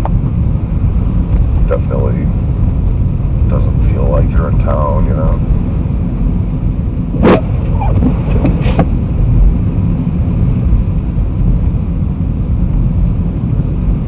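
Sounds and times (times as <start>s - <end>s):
car driving over snow: 7.1s - 10.7s.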